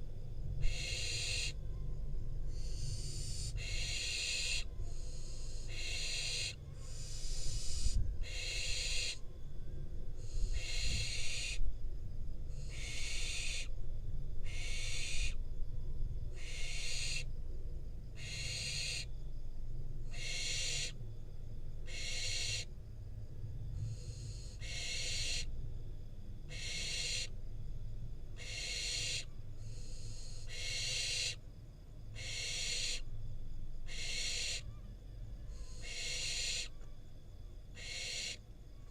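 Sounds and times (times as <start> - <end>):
low rumble: 0.0 - 4.0
young owls hissing begging calls: 0.6 - 1.7, 2.5 - 9.3, 10.2 - 11.6, 12.5 - 13.8, 14.4 - 15.4, 16.3 - 17.3, 18.2 - 19.1, 20.0 - 21.0, 21.8 - 22.7, 23.8 - 25.5, 26.5 - 27.4, 28.3 - 31.4, 32.1 - 33.1, 33.9 - 34.8, 35.5 - 36.8, 37.7 - 38.5.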